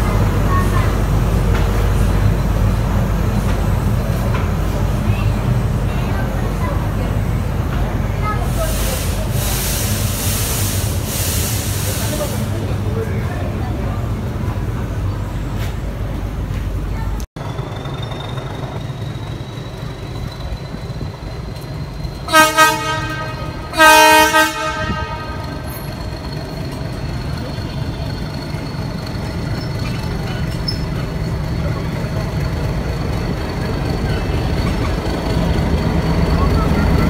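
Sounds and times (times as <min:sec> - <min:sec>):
carriages rumbling past: 0:00.0 - 0:37.0
train horn blasts: 0:22.3 - 0:25.8.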